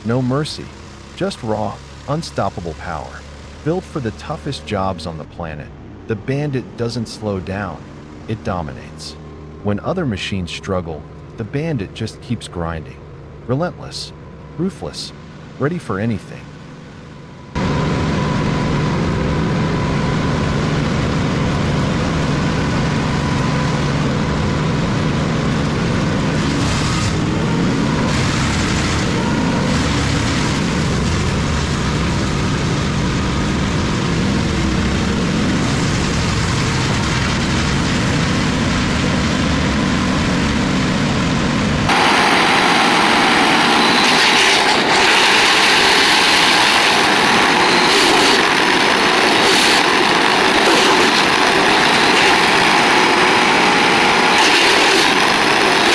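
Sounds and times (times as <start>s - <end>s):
hissy chipping noise: 41.9s - 55.9s
wood chipper engine grinding: 41.9s - 55.9s.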